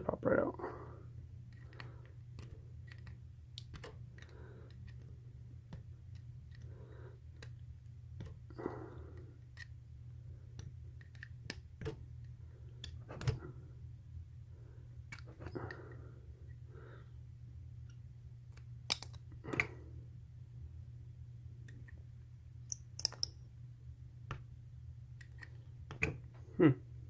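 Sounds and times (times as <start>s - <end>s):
low steady hum: 0.0s - 27.0s
tool clicking on metal: 22.7s - 23.3s.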